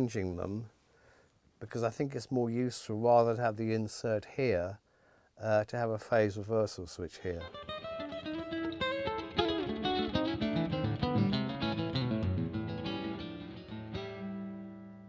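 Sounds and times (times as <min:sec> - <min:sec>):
acoustic guitar music: 0:07.4 - 0:15.0.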